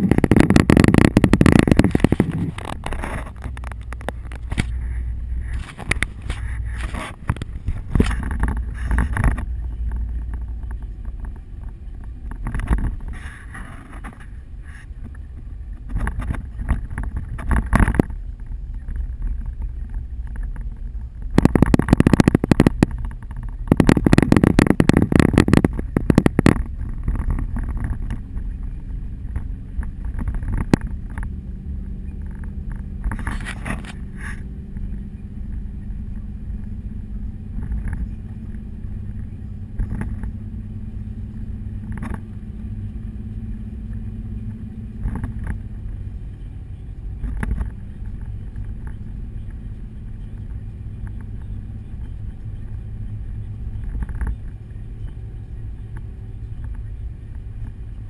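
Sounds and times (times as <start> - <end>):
road and engine rumble: 0.0 - 58.0.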